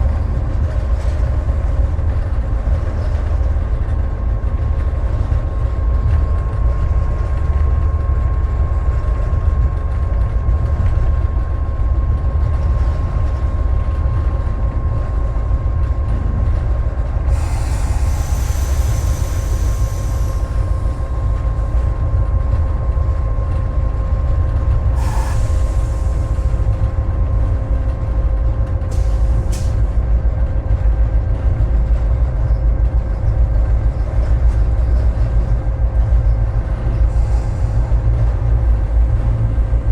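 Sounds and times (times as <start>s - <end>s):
engine whine: 0.0s - 39.9s
locomotive diesel engine rumble: 0.0s - 39.9s
air hiss: 17.3s - 21.0s, 25.0s - 26.5s.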